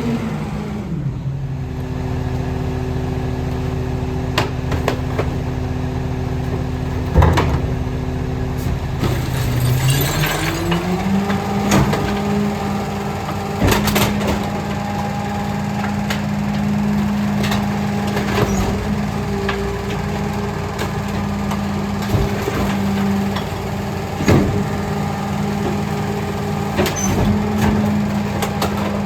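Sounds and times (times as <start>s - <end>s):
garbage truck engine idling: 1.0s - 29.0s
recyclables crashing into hopper: 6.3s - 29.0s.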